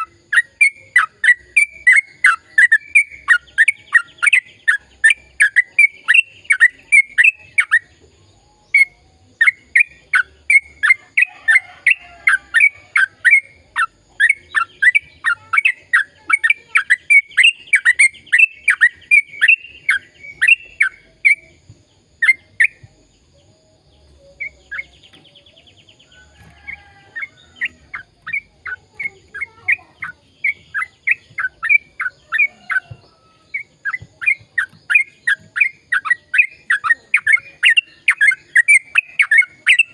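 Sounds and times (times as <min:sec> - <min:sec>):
bird singing downward-sliding notes: 0:00.0 - 0:39.9.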